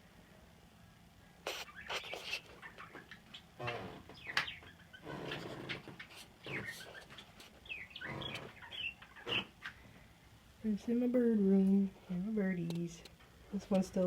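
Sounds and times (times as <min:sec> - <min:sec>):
low bird calls: 0:01.5 - 0:10.2
birds chirping and warbling: 0:01.5 - 0:11.7.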